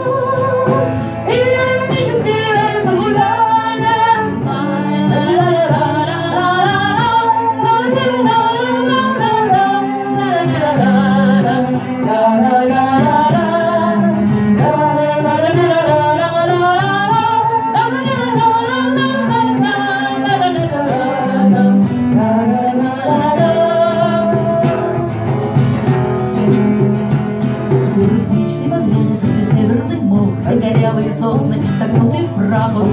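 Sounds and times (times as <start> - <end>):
acoustic guitar: 0.0 - 32.9
person singing wordless melody: 27.7 - 32.9.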